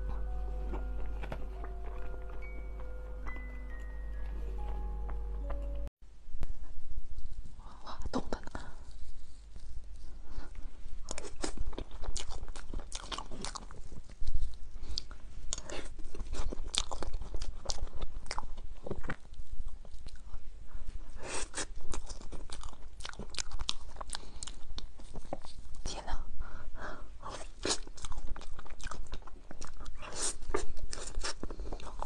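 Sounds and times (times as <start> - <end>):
crunching and wet chewing: 10.4 - 20.5, 21.1 - 25.9, 27.2 - 32.0.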